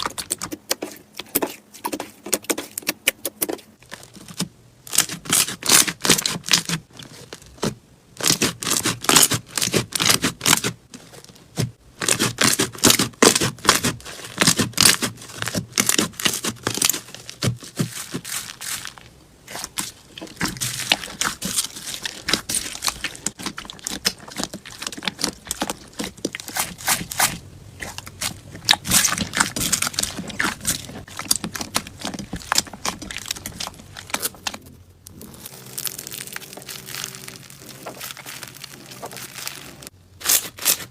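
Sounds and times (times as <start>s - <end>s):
slime crackling and popping: 11.5s - 40.9s.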